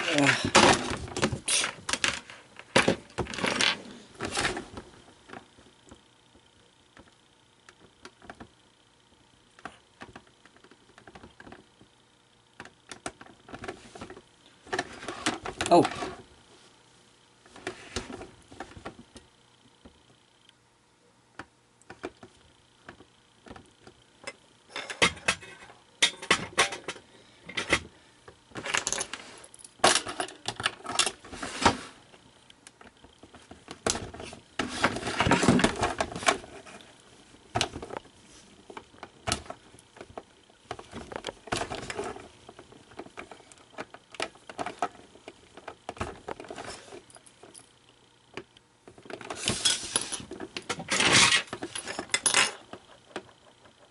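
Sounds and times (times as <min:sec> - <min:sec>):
clicks and clattering of tools: 0:24.2 - 0:27.9, 0:48.4 - 0:53.9.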